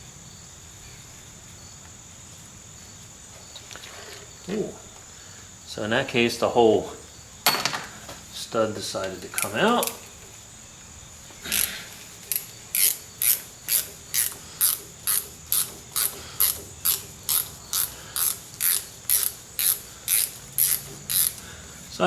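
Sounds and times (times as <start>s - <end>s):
ratchet wrench clicking: 9.3s - 10.1s, 11.5s - 21.5s.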